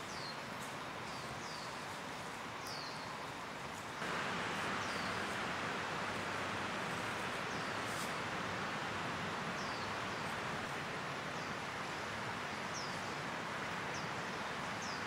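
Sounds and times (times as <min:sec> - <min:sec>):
background hiss: 0:00.0 - 0:15.0
bird chirping: 0:04.0 - 0:10.4.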